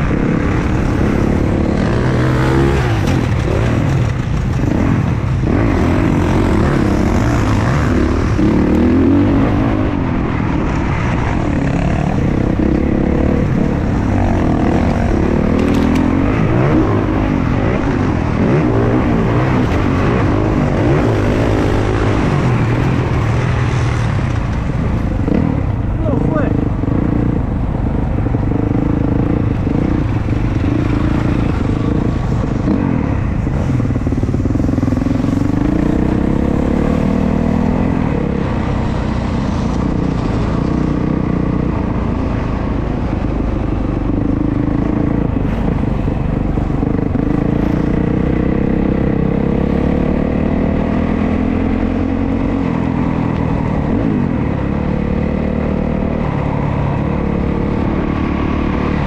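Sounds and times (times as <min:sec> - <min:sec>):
dirt bike engine revving: 0:00.0 - 0:24.2.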